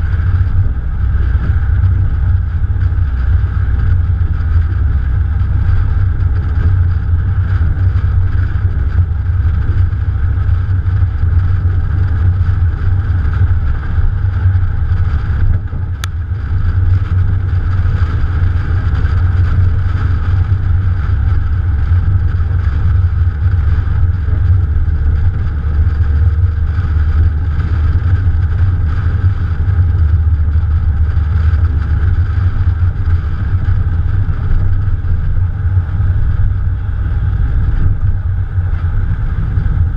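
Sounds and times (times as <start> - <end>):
car engine rumble: 0.0 - 39.9
rushing wind: 0.0 - 39.9.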